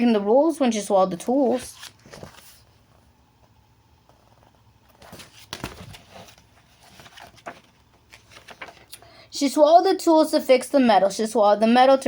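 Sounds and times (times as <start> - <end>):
paper pages turning: 1.2 - 2.8, 4.1 - 9.0.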